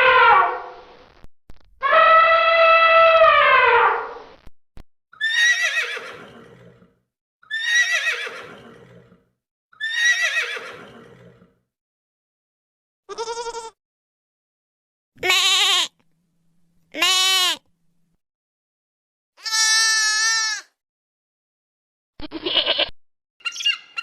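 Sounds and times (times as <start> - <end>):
horse whinnying: 5.2 - 9.2, 9.8 - 11.5
goat bleating: 13.1 - 13.8, 15.2 - 16.0, 16.9 - 17.7, 19.4 - 20.7, 22.2 - 23.0.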